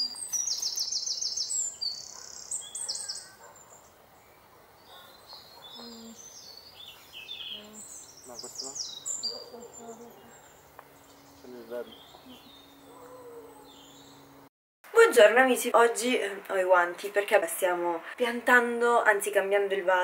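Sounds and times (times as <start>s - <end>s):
small songbirds chirping: 0.0s - 14.4s.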